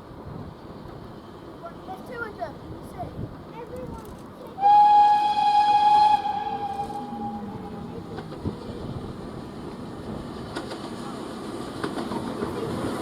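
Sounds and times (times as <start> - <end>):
train running: 0.0 - 13.0
steam locomotive whistle: 4.6 - 8.0.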